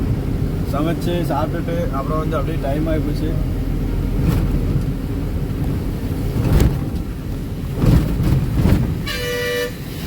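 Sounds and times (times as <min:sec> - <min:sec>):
truck engine and road rumble: 0:00.0 - 0:10.0
vehicle horn steady tone: 0:09.0 - 0:10.0.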